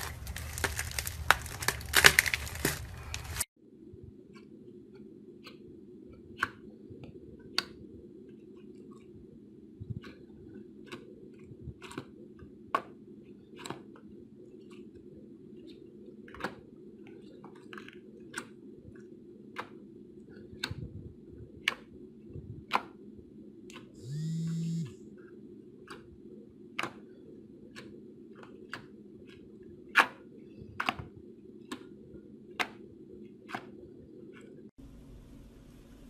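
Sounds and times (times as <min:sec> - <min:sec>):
low background hum: 0:00.0 - 0:36.0
short low buzz: 0:24.0 - 0:25.0.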